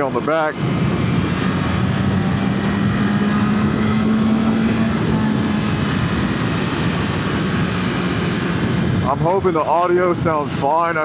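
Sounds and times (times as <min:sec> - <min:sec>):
wind rushing over microphone: 0:00.0 - 0:11.0
motorcycle engine: 0:00.5 - 0:09.1.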